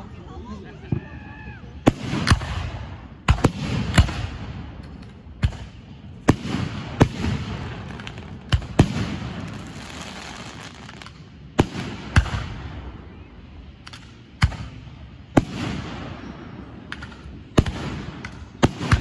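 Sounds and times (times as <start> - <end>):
fireworks bursting with echo: 1.8 - 19.0.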